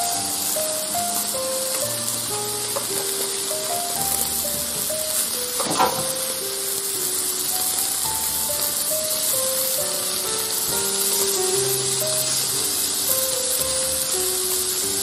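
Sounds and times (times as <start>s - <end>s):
food sizzling in a metal pan: 0.0s - 15.0s
soft plucked background music: 0.0s - 15.0s
utensil knocking against pan: 5.6s - 6.1s.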